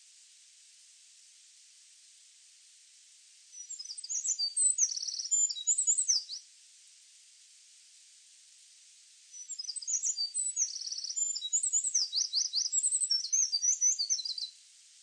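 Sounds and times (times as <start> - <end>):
steady hiss: 0.0 - 15.0
songbird singing: 3.5 - 6.4, 9.3 - 14.6.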